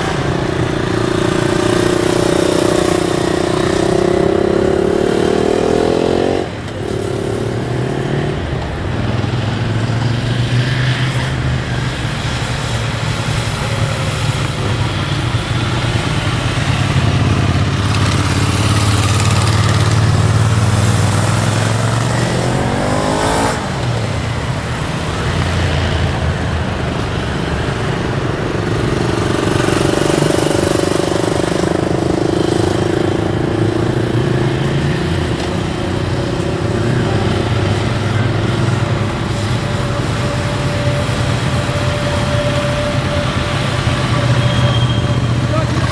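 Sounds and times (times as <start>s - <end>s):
motorcycle engine revving: 0.0s - 45.9s
motorcycle engines humming: 0.0s - 45.9s.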